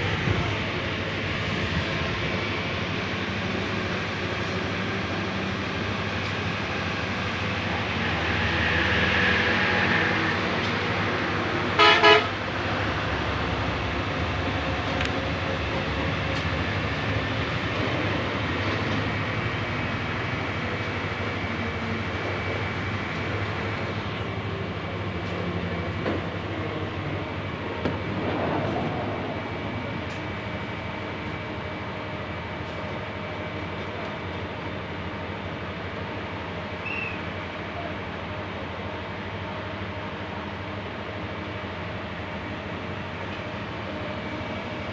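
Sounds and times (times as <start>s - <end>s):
traffic and engine noise: 0.0s - 44.9s
vehicle horn toots: 11.8s - 12.4s.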